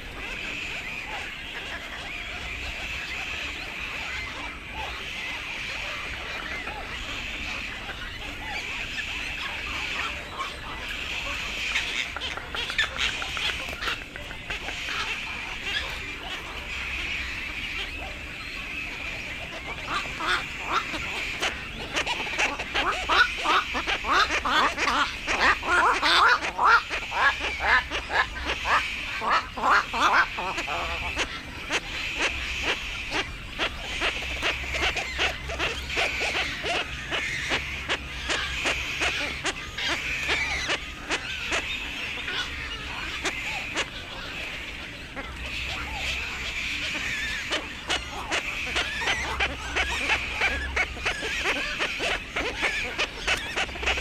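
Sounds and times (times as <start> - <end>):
herons clucking calls: 0.0 - 54.0.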